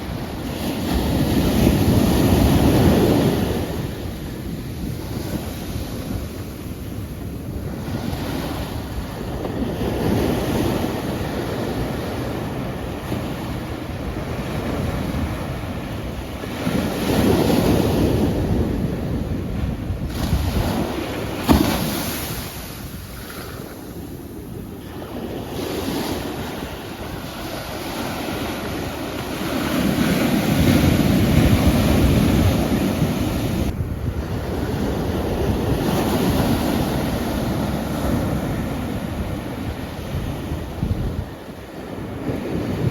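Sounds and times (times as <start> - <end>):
sea waves breaking on shore: 0.0 - 42.9.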